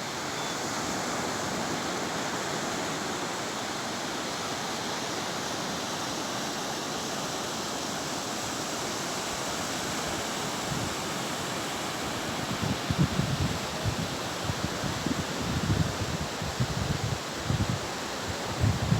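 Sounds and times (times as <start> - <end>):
wind buffeting microphone: 12.5 - 18.9.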